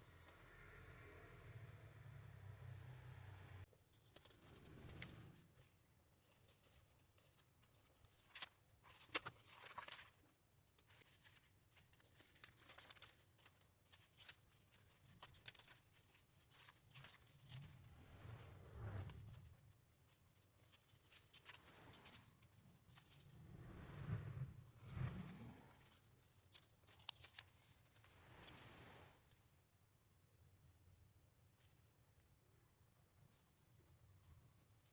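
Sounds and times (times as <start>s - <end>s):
paper rustling: 3.9s - 17.8s, 20.1s - 23.3s.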